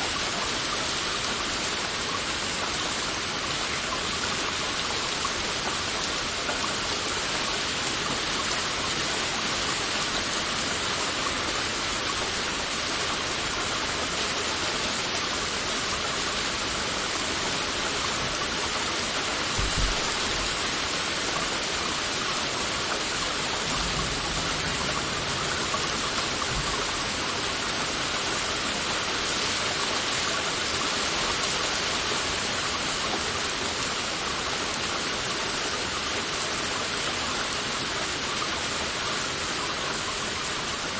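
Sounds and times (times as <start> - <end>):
heavy rain hissing: 0.0 - 40.9
low thumps: 19.6 - 20.5.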